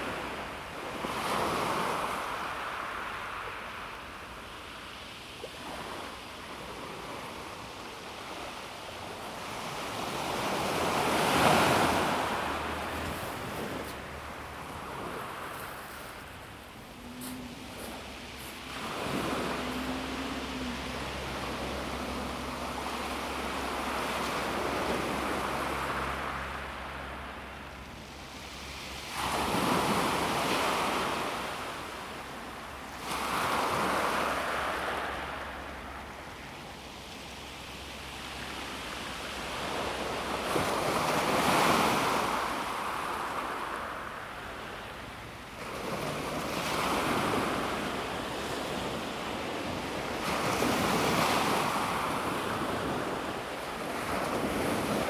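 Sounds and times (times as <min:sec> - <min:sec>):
waves breaking on pebble shore: 0:06.9 - 0:26.7, 0:45.6 - 0:55.0.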